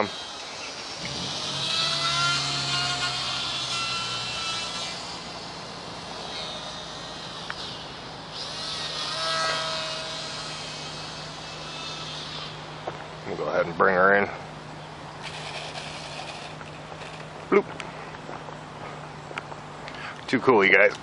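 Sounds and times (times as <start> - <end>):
rc plane motor whining: 0.0 - 12.8, 15.2 - 17.3
steady low hum: 0.0 - 21.0.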